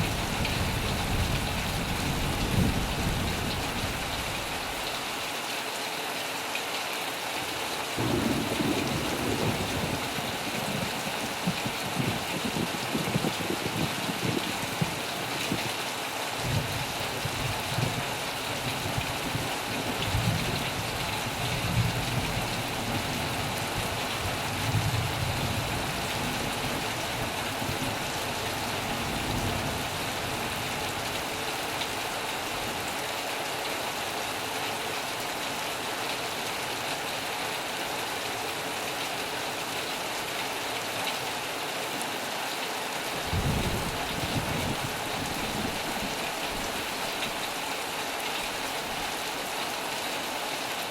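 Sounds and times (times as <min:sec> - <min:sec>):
thunder rumbles: 0:00.0 - 0:04.2, 0:08.0 - 0:15.6, 0:43.2 - 0:47.4
heavy rain: 0:00.0 - 0:50.9.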